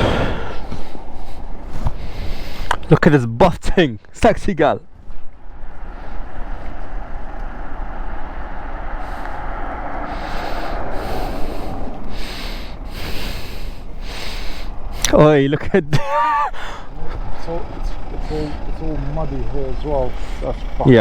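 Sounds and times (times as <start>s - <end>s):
wind rushing over microphone: 0.0s - 2.8s, 4.9s - 15.0s
hissing gusts: 0.0s - 2.9s, 5.6s - 15.4s, 16.6s - 21.0s
low rumble: 4.8s - 15.1s.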